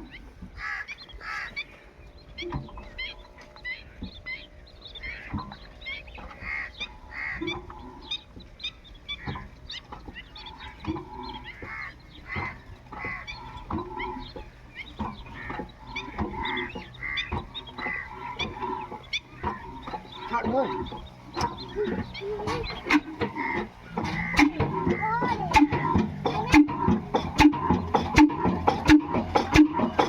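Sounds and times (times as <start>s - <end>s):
geese honking: 0.0s - 30.0s
sharp knocks: 10.8s - 30.0s.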